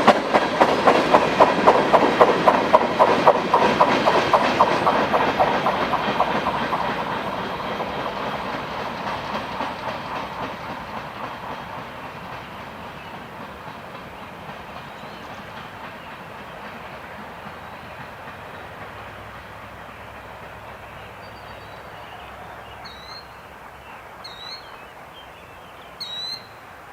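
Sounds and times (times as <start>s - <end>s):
wheels clicking over rail joints: 0.0s - 24.4s
freight train rolling on rails: 0.0s - 26.9s
bird chirping: 20.7s - 26.6s.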